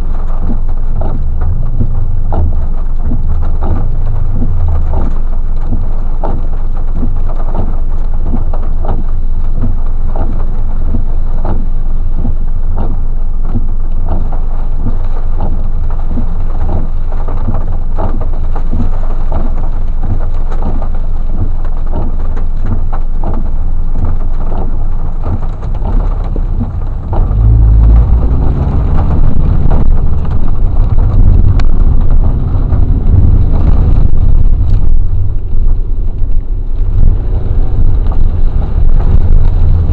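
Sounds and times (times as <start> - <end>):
heavy rain falling: 0.0 - 39.9
low rumble: 0.0 - 39.9.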